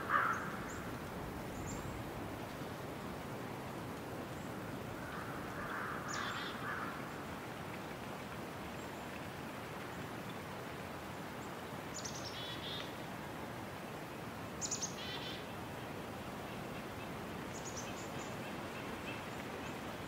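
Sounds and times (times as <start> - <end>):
bird calling: 0.0 - 0.8, 5.0 - 7.0
steady outdoor hiss: 0.0 - 20.0.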